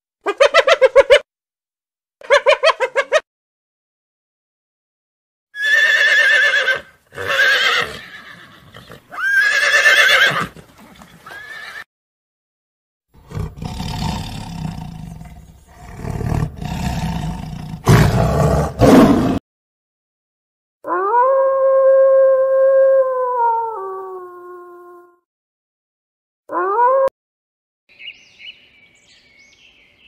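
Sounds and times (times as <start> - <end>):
horses whinnying: 5.6 - 11.9
tiger growling and roaring: 13.2 - 19.4.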